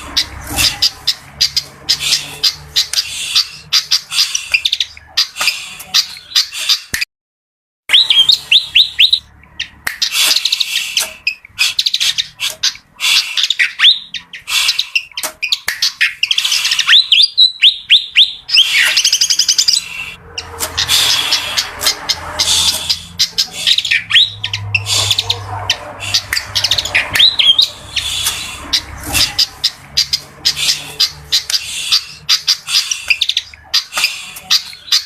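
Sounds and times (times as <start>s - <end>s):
bird high chattering: 0.0s - 7.0s, 7.9s - 35.0s
bird singing whistled notes: 7.9s - 9.3s, 13.5s - 20.2s.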